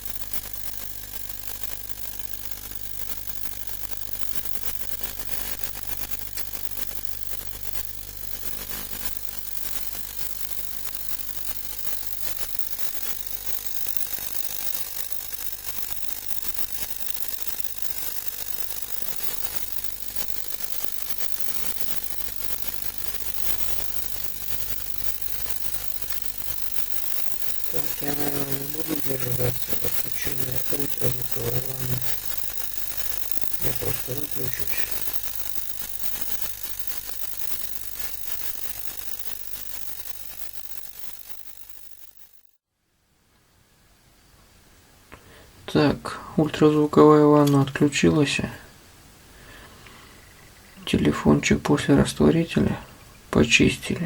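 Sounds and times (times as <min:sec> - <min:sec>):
high hiss: 0:11.5 - 0:42.2
ultrasonic cleaner humming: 0:14.6 - 0:41.6.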